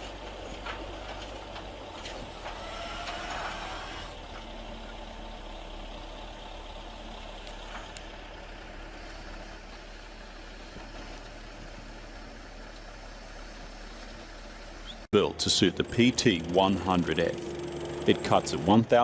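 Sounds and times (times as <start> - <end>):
loader engine running: 0.0 - 19.0.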